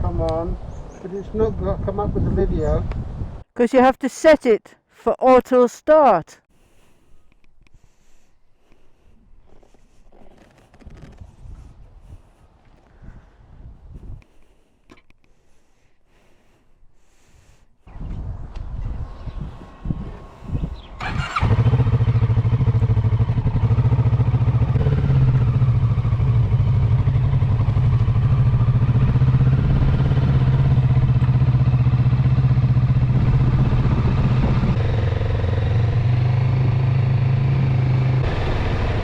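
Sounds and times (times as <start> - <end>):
motorcycle engine starting and idling: 20.9 - 39.0.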